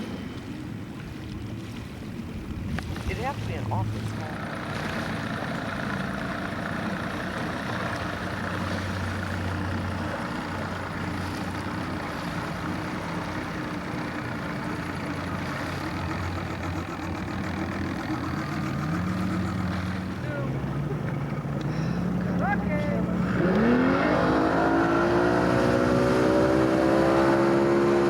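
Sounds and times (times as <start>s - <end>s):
motorboat engine running: 0.0s - 28.0s.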